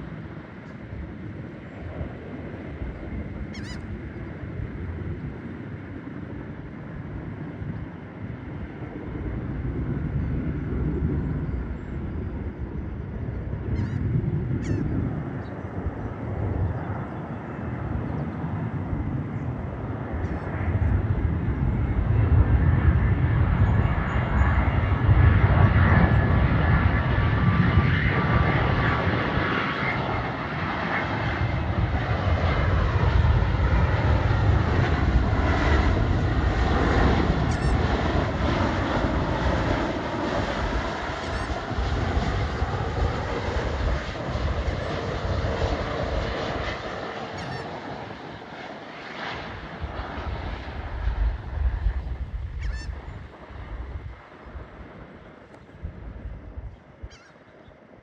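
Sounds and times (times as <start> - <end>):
jet airliner engine noise: 0.0 - 58.0.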